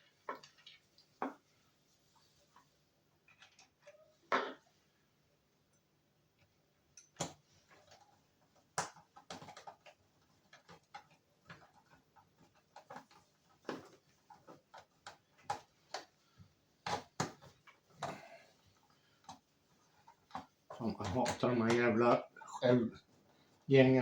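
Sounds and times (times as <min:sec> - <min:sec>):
small parts clicking and tapping: 0:03.2 - 0:04.0, 0:05.7 - 0:16.2.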